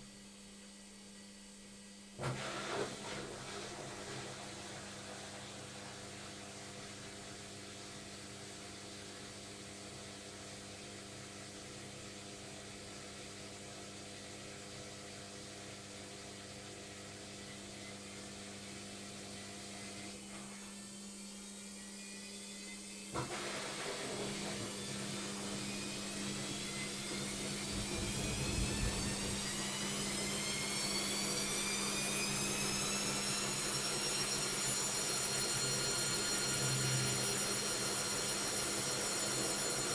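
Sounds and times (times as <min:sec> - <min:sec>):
washing machine motor spinning: 0:19.9 - 0:39.9.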